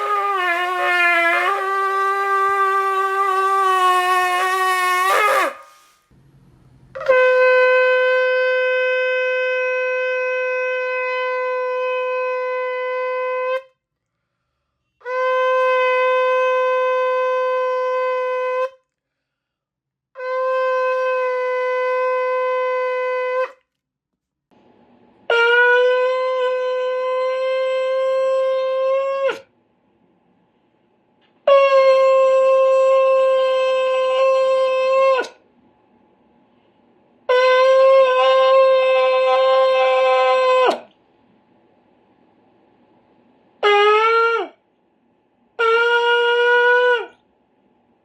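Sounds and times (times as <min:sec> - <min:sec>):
ram's horn blasts: 0:00.0 - 0:13.7.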